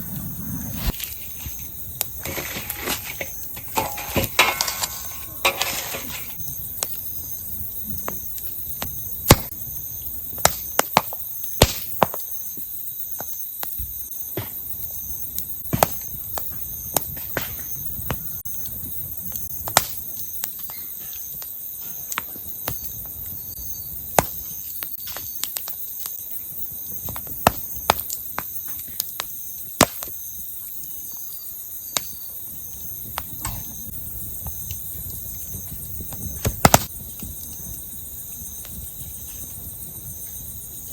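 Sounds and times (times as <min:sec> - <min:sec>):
high insect chirring: 0:00.0 - 0:17.0
firewood crackling and popping: 0:00.0 - 0:40.9.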